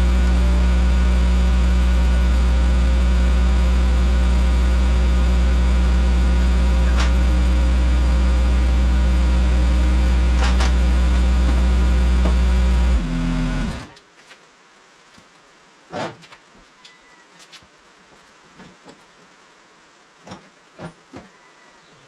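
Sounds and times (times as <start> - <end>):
machine engine running down: 0.0 - 13.9.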